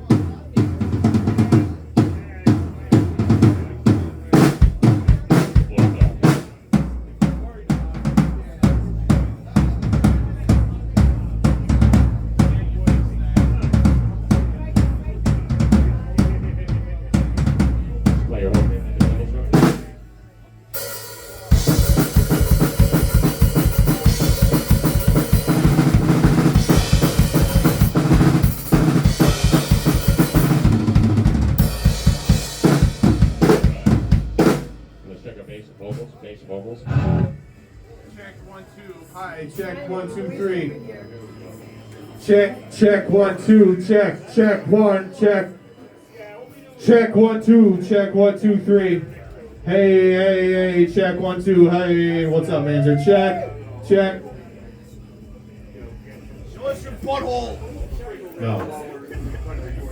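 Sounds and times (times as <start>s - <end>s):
cymbals washing: 20.8s - 35.1s.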